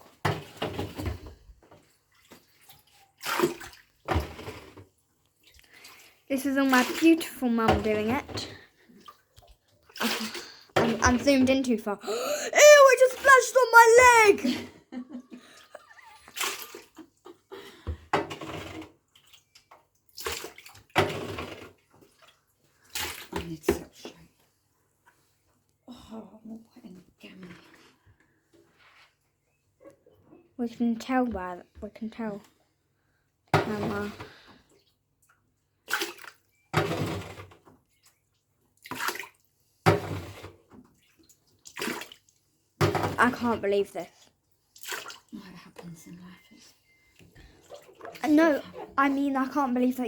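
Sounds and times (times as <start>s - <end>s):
water sloshing and splashing: 0.0s - 14.6s, 15.3s - 17.5s, 18.2s - 25.4s, 33.6s - 46.1s, 46.8s - 50.0s.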